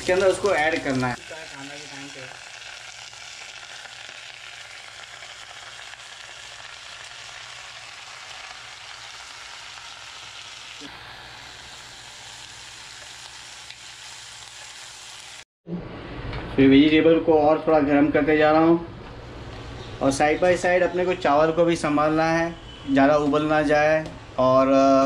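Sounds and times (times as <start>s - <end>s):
vegetables sizzling in hot oil: 0.0s - 15.5s.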